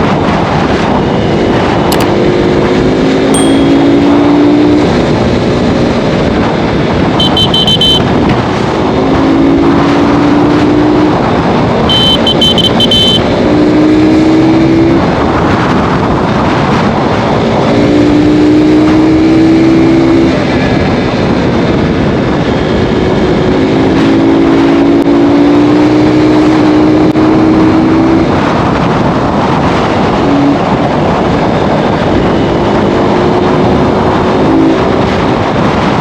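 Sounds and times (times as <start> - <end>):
motorcycle engine accelerating: 0.1 - 36.0
high beeps: 3.4 - 4.3, 7.2 - 8.1, 11.9 - 13.3.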